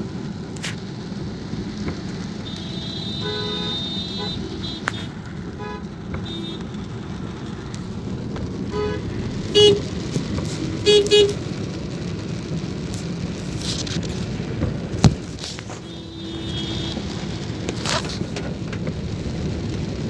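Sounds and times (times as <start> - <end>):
rain: 0.0 - 20.0
road noise from moving car: 0.0 - 20.0
vehicle horns honking: 2.4 - 6.8, 8.7 - 9.9, 10.8 - 11.4, 15.6 - 18.0.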